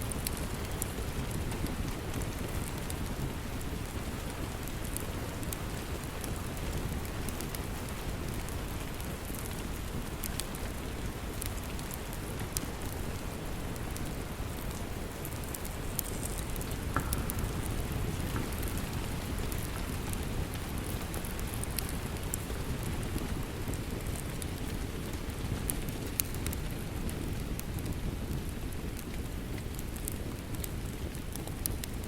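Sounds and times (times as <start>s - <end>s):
wood fire crackling: 0.0s - 32.0s
heavy rain: 12.0s - 26.0s.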